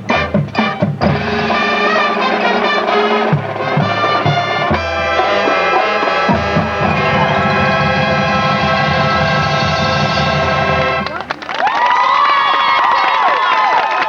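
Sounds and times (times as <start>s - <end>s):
drum hits: 0.0s - 11.2s
marching band playing: 0.0s - 11.4s.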